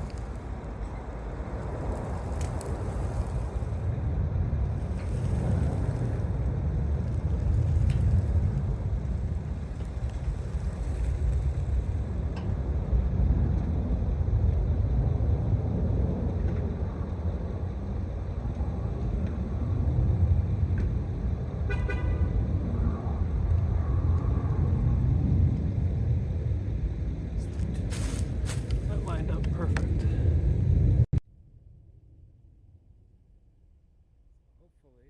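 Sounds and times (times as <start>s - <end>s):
vehicle engine running at low speed: 0.0s - 31.1s.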